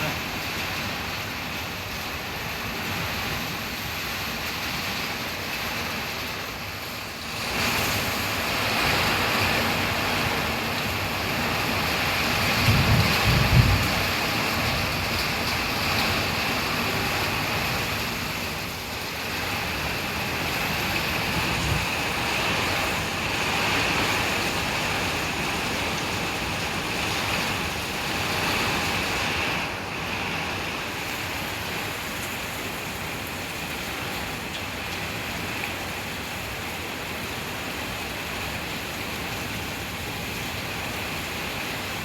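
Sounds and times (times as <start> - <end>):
heavy rain falling: 0.0 - 42.0
wind rumble on microphone: 7.3 - 32.7.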